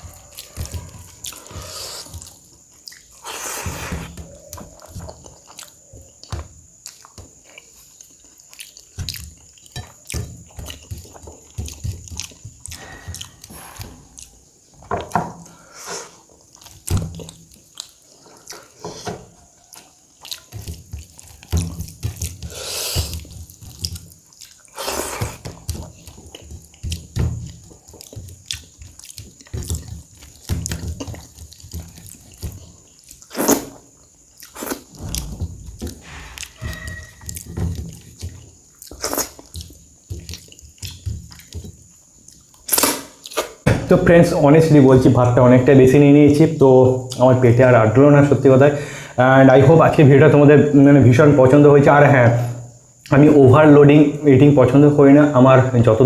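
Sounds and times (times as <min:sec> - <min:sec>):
person chewing food: 0:00.0 - 0:43.6
faint high whine: 0:35.0 - 0:37.6.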